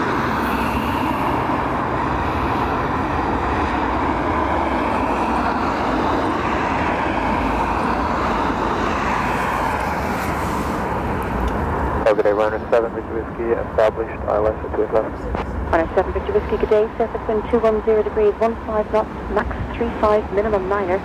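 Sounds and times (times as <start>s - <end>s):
strong storm wind rushing: 0.0s - 13.8s, 14.7s - 21.0s
wind buffeting microphone: 15.0s - 21.0s.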